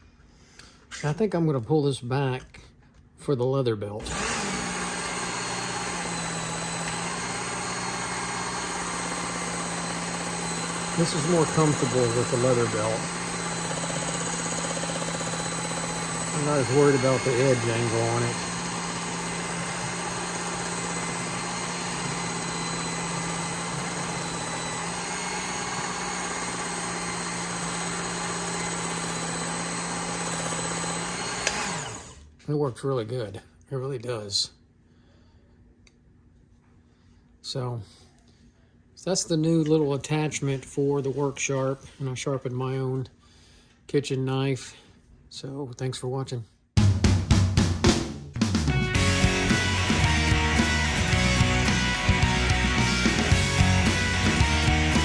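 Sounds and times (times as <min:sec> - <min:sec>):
belt sharpener motor humming: 0:04.0 - 0:32.2, 0:49.0 - 0:55.0.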